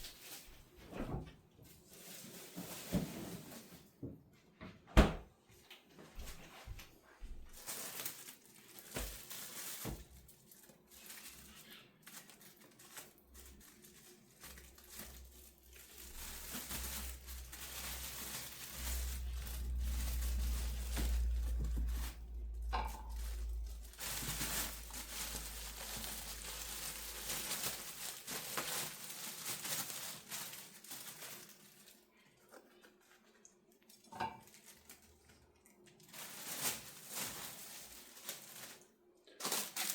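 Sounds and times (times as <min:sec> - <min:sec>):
baking paper crinkling: 0:00.0 - 0:04.0, 0:05.7 - 0:39.9.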